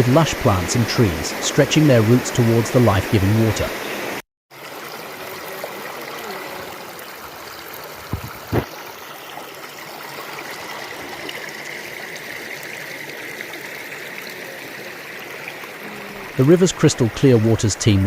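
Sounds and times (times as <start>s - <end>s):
brief thumps: 8.1s - 8.7s.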